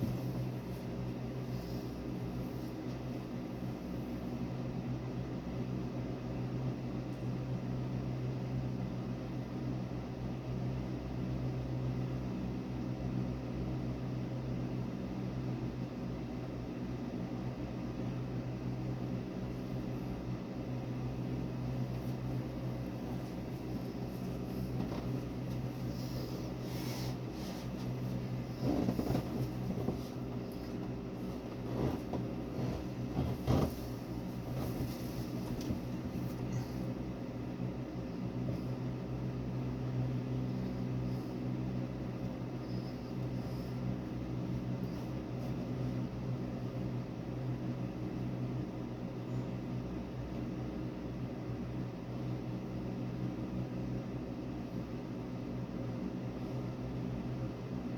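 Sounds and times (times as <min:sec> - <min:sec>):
low machine hum: 0:00.0 - 0:57.9
rubbing and handling noises: 0:21.8 - 0:36.9.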